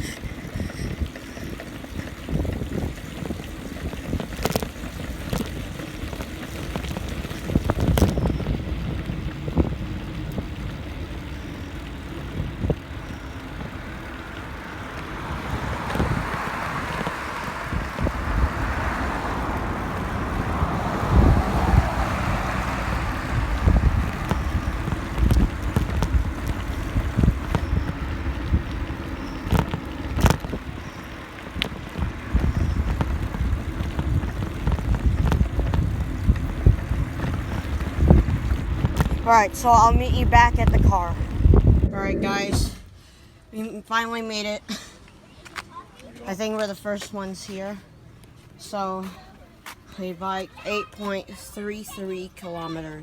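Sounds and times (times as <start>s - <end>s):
bicycle knocks and rattles: 0.0s - 41.9s
wind buffeting microphone: 0.0s - 43.1s
bicycle tyre rumble: 0.0s - 43.5s.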